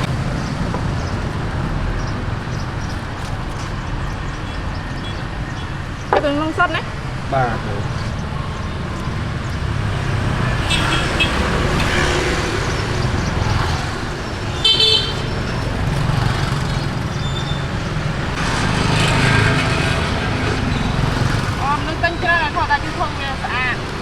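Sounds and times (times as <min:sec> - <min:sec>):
motorbikes passing: 0:00.0 - 0:24.0
street traffic: 0:00.0 - 0:24.0
vehicle horn toot: 0:10.6 - 0:12.3, 0:14.6 - 0:15.3.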